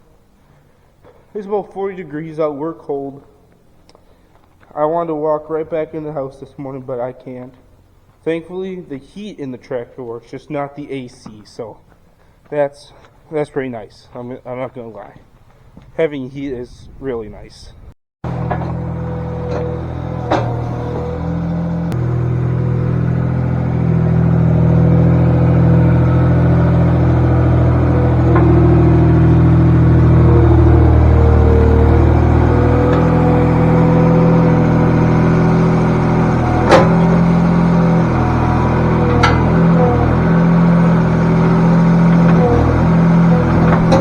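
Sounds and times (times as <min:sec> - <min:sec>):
sharp knocks: 0:18.2 - 0:24.0, 0:25.9 - 0:29.6
tractor diesel engine running: 0:18.2 - 0:44.0.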